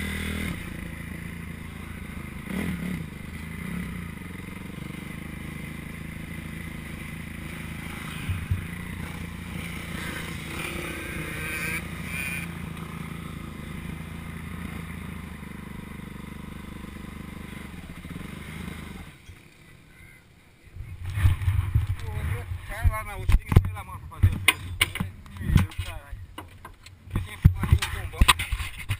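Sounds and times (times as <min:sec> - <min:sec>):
motorcycle engine running: 0:00.0 - 0:20.2.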